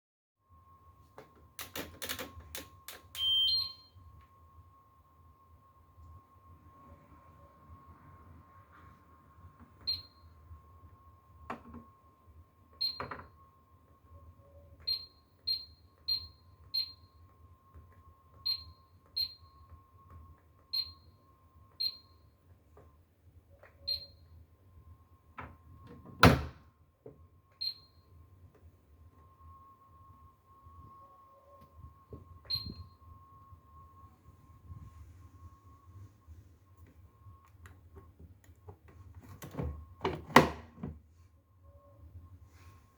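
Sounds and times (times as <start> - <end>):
faint steady high tone: 0.4 - 26.2, 27.1 - 38.6, 41.4 - 42.9
short high beeps: 3.2 - 3.9.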